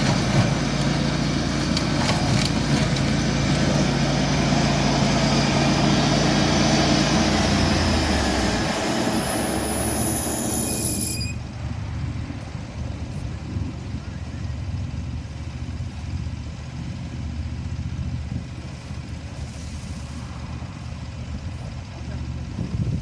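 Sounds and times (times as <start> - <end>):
tractor shredder running: 0.0 - 11.1
high machine whine: 7.3 - 11.4.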